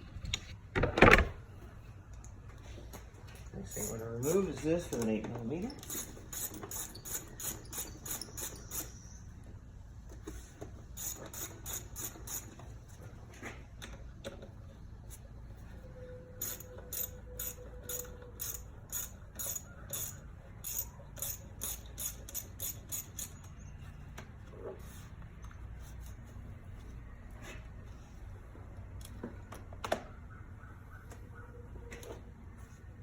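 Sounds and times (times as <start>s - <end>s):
hand ratchet clicking: 3.7s - 9.0s, 11.0s - 12.6s, 16.4s - 23.5s.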